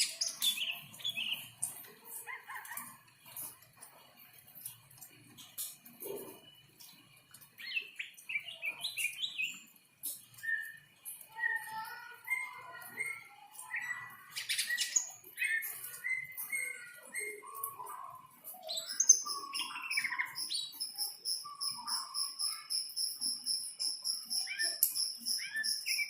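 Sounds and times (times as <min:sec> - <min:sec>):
bird singing whistled phrases: 0:10.4 - 0:26.0.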